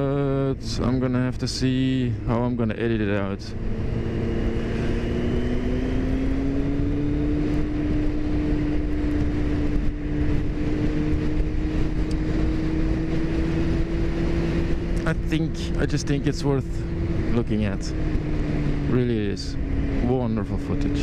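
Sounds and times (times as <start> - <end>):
motorcycle engine running: 0.0 - 21.0
wind and road noise: 0.0 - 21.0.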